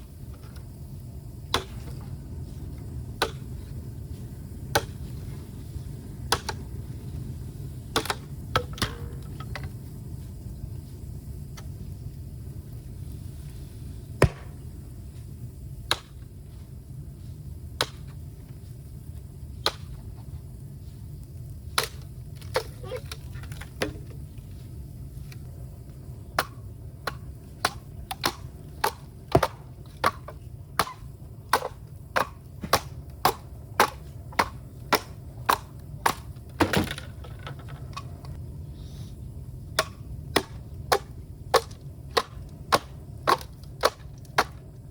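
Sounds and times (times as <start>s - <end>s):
blade chopping bamboo: 14.2s - 14.5s, 26.4s - 37.0s, 39.8s - 44.6s.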